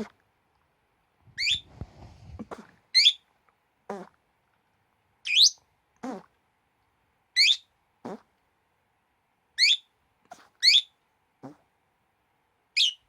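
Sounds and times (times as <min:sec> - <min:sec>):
faint rustling: 0:01.3 - 0:02.9
pet chirping: 0:01.4 - 0:01.7, 0:02.3 - 0:03.2, 0:05.3 - 0:06.2, 0:07.4 - 0:08.2, 0:09.6 - 0:11.6, 0:12.8 - 0:13.0.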